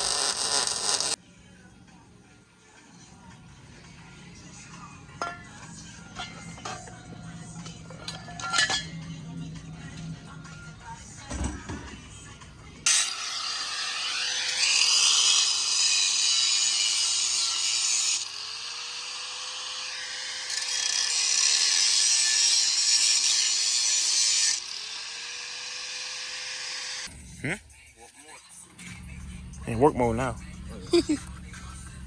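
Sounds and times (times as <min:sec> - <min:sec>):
power tool grinding metal: 0:00.0 - 0:01.2, 0:12.8 - 0:27.1.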